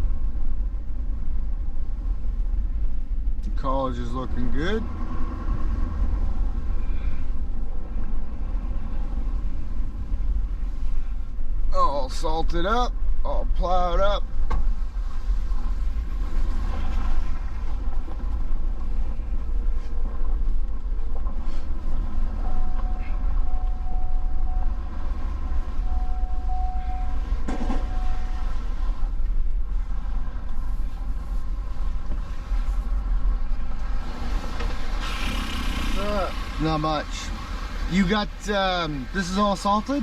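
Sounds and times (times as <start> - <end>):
truck engine and road rumble: 0.0 - 40.0
faint high tone: 22.4 - 24.9, 25.7 - 28.8.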